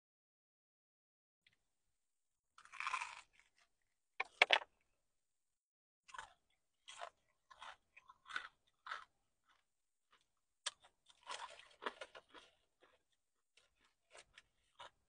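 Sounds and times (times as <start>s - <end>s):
crunchy chewing of fried chicken: 2.6s - 4.4s, 6.1s - 15.0s.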